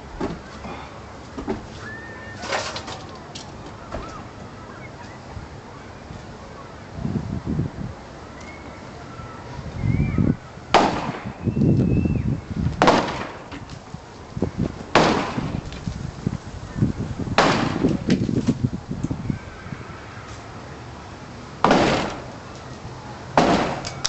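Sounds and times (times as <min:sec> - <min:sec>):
debris rattling: 0:02.4 - 0:03.3
sharp impacts on wood: 0:10.7 - 0:11.4, 0:12.7 - 0:13.8, 0:14.9 - 0:15.8, 0:17.4 - 0:18.3, 0:21.6 - 0:22.3, 0:23.4 - 0:24.0
wood breaking: 0:12.8 - 0:13.6, 0:14.9 - 0:15.9, 0:21.6 - 0:22.3.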